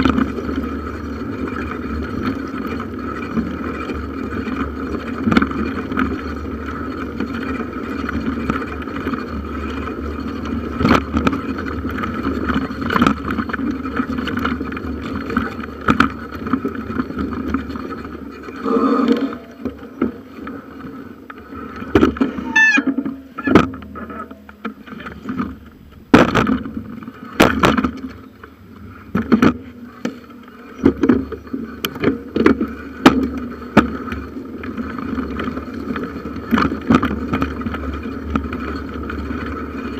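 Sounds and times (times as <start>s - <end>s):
bicycle knocks and rattles: 0.0s - 39.9s
bicycle tyres humming: 0.0s - 39.9s
short squeak: 22.3s - 24.2s.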